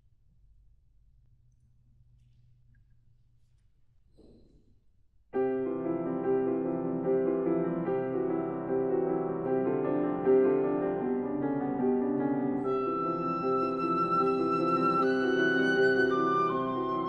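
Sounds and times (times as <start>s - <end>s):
piano playing held chords: 5.4s - 17.0s.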